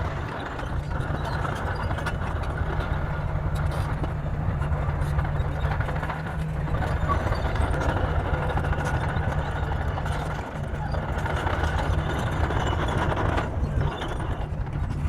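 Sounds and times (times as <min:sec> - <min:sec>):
bulldozer diesel engine droning: 0:00.0 - 0:15.0.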